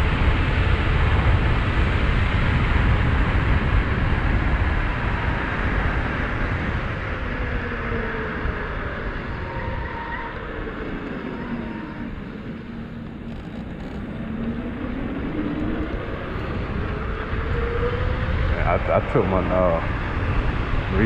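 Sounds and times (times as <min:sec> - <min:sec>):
wind and road noise: 0:00.0 - 0:21.0
electric bike motor whining: 0:05.5 - 0:18.5.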